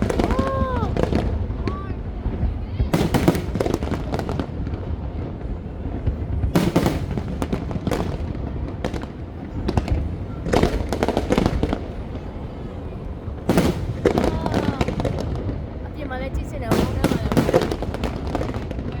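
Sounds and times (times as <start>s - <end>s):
fireworks crackling bangs: 0.0s - 19.0s.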